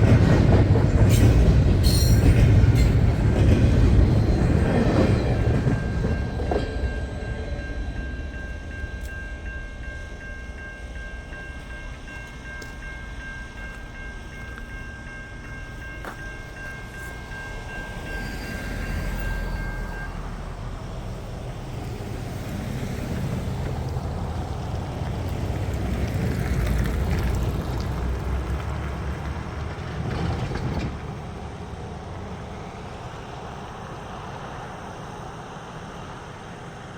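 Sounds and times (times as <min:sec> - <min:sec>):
freight train rumbling past: 0:00.0 - 0:36.9
train wheels squealing: 0:00.8 - 0:24.5.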